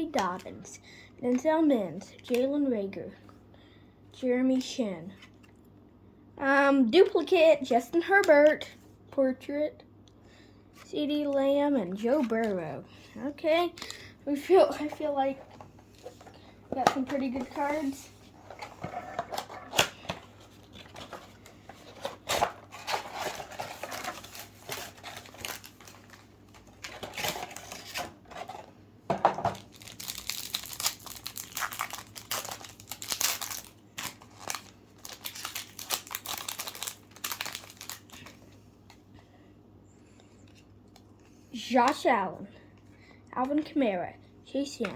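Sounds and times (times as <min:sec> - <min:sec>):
cards rustling: 0:11.3 - 0:12.7, 0:13.4 - 0:28.7, 0:29.5 - 0:39.0
wrapper tearing and crinkling: 0:19.0 - 0:28.1, 0:29.5 - 0:38.4.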